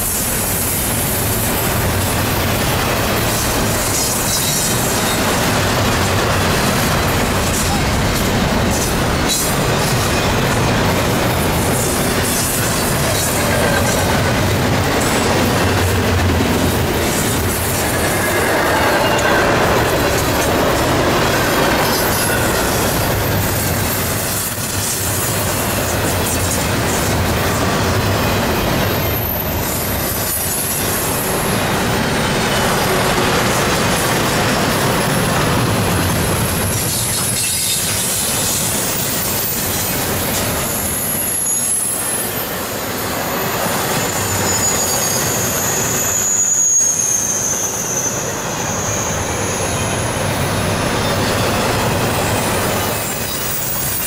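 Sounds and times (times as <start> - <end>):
freight train wheels rumbling: 0.0 - 54.0
high-pitched wheel squeal: 17.0 - 25.4, 37.0 - 54.0.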